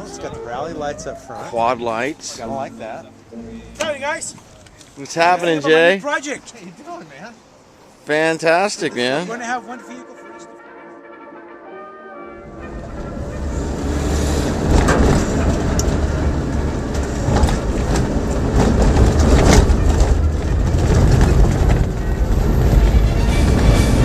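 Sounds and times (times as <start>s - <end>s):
vehicle rumble and road noise: 12.4s - 24.0s
knocks and rattles: 14.5s - 22.9s.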